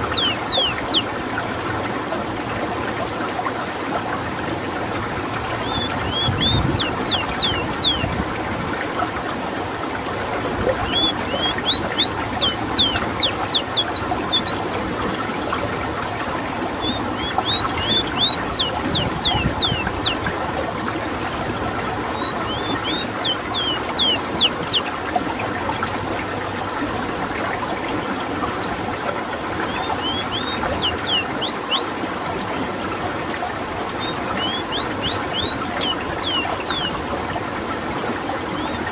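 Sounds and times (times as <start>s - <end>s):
bird singing rolling song: 0.0s - 1.2s, 5.5s - 8.2s, 10.7s - 14.9s, 16.7s - 20.4s, 21.0s - 24.9s, 29.6s - 32.0s, 33.8s - 37.1s, 38.4s - 38.9s
rushing water: 0.0s - 38.9s.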